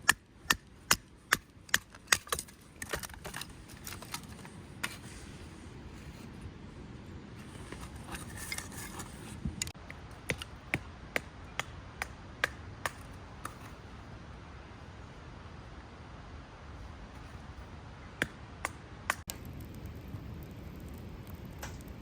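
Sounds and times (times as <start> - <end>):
rustling: 7.3 - 9.6.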